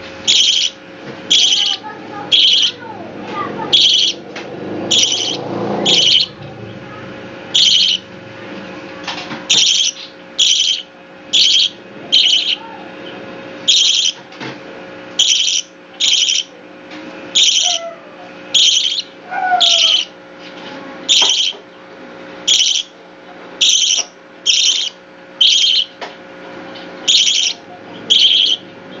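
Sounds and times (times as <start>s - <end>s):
faint steady hum: 0.0s - 29.0s
young bird calling: 0.2s - 3.0s, 3.6s - 4.2s, 4.8s - 6.8s, 7.5s - 8.1s, 9.5s - 14.2s, 15.2s - 16.5s, 17.3s - 20.2s, 21.1s - 21.7s, 22.5s - 23.0s, 23.6s - 26.0s, 27.0s - 29.0s.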